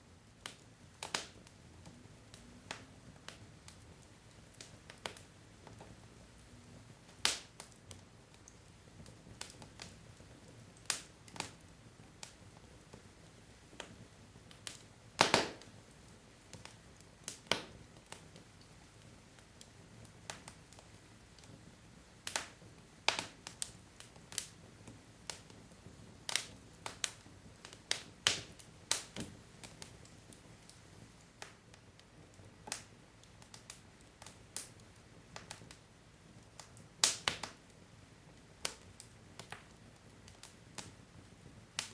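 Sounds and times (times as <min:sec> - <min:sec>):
low steady hiss: 0:00.0 - 0:41.9
wood fire crackling: 0:00.0 - 0:41.9.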